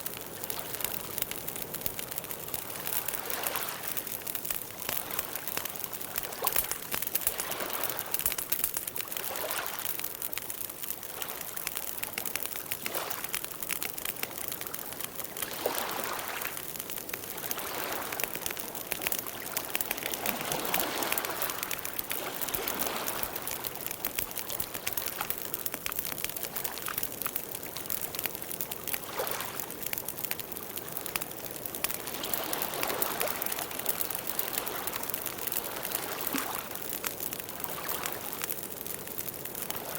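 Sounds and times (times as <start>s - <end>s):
wood crackling and popping: 0.0s - 39.9s
flames rushing: 0.1s - 9.2s.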